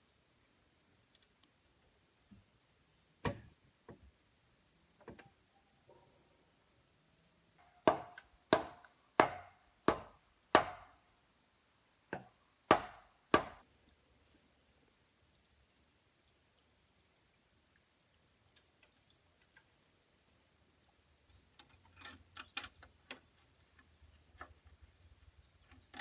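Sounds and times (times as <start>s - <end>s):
wood chopping blows: 7.8s - 11.0s, 12.7s - 13.6s.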